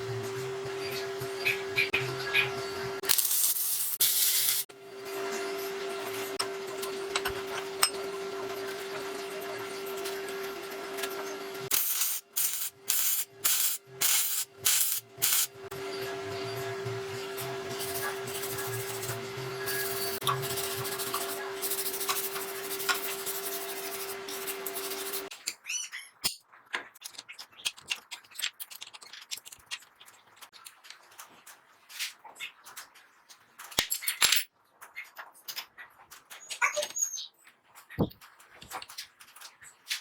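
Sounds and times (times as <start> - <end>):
belt hissing: 3.1 - 4.7, 11.7 - 15.6
belt sander whining: 4.8 - 25.3.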